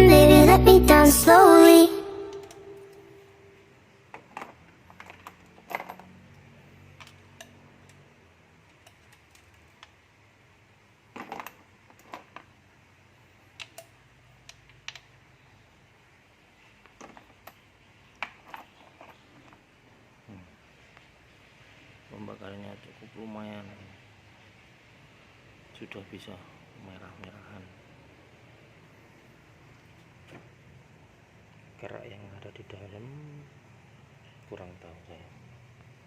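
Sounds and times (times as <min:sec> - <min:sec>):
light clicks and taps of tools: 0:04.1 - 0:10.0, 0:13.5 - 0:15.2.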